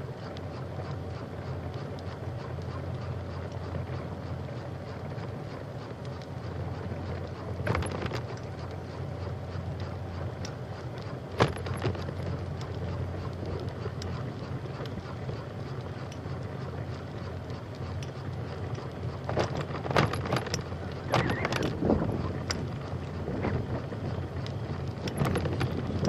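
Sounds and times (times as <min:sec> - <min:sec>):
bicycle riding rumble: 0:00.0 - 0:26.0
short rattle: 0:09.8 - 0:14.3, 0:19.1 - 0:26.0
wind on microphone: 0:21.1 - 0:22.5, 0:23.2 - 0:24.1.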